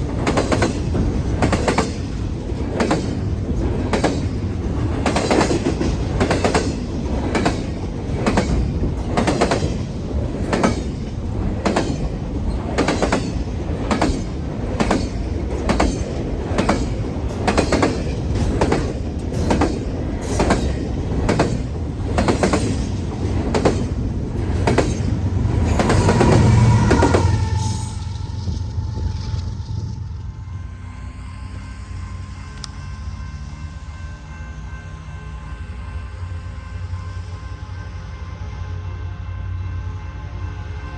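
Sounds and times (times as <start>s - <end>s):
train wheels clicking over rail joints: 0.0s - 28.8s
freight train low rumble: 0.0s - 40.9s.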